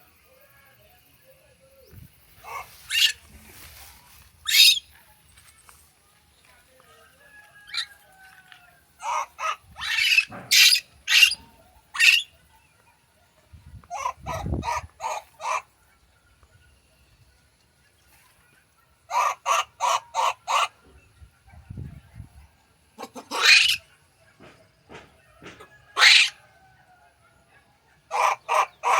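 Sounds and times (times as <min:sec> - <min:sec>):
monkey shrill calls: 0:02.4 - 0:03.2, 0:04.4 - 0:04.9, 0:07.7 - 0:07.9, 0:09.0 - 0:12.3, 0:23.0 - 0:23.9, 0:26.0 - 0:26.4.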